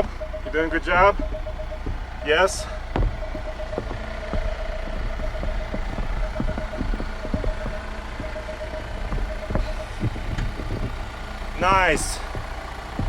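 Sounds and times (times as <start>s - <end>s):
low engine rumble: 0.0s - 13.0s
parking sensor beeping: 0.0s - 13.0s
clicks and knocks on snow: 9.1s - 12.6s.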